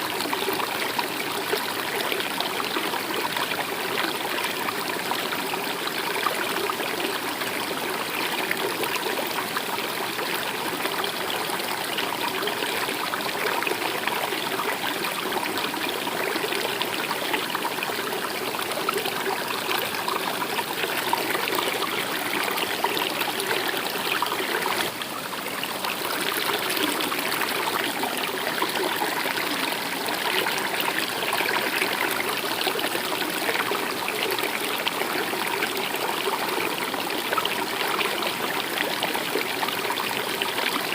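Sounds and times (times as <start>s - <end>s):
stream babbling: 0.0s - 40.9s.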